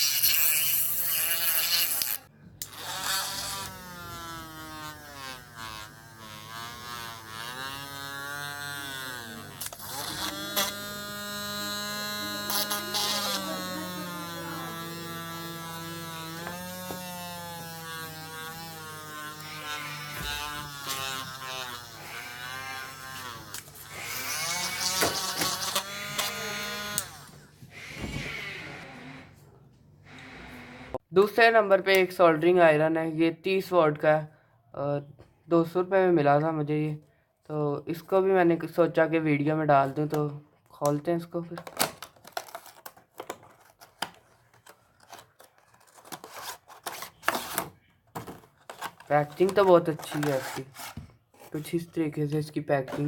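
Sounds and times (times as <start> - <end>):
rotary drill motor whining: 0.0 - 29.4, 30.1 - 31.0.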